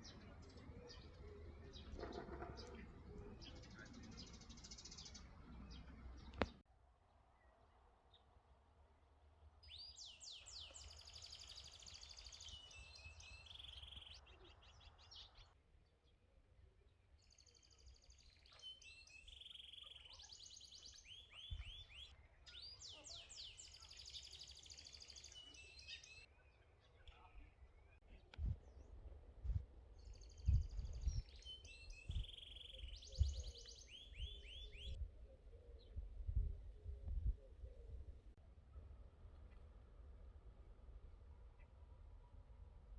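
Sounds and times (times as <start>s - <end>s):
faint songbird singing: 0.0s - 6.6s, 9.6s - 38.4s
single sharp click: 6.3s - 6.6s.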